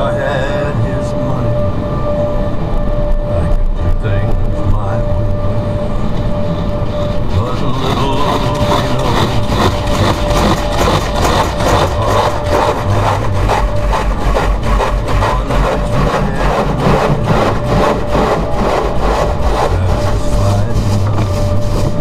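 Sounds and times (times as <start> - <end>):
machine hum: 0.0 - 22.0
brushes swishing over car: 7.3 - 22.0.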